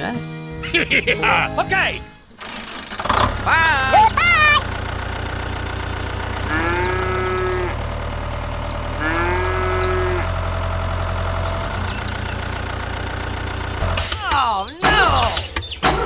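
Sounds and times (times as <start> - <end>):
long pitched calls: 3.9 - 4.6.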